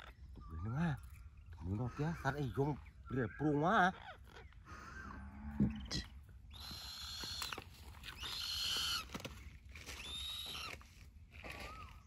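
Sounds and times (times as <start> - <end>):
bird raspy hissing calls: 4.5 - 9.1.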